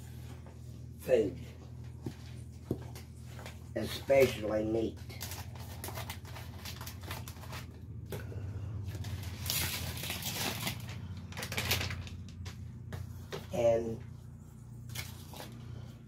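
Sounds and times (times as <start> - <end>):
low steady hum: 0.0 - 16.0
paper packet crinkling: 3.4 - 8.0, 8.8 - 12.8.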